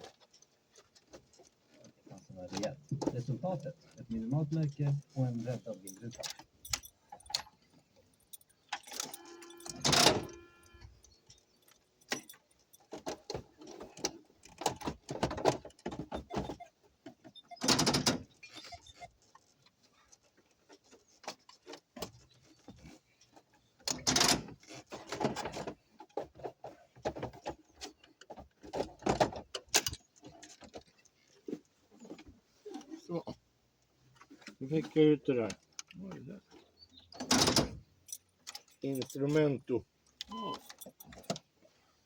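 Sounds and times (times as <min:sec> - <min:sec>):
plastic and metal parts rattling: 0:00.0 - 0:32.9.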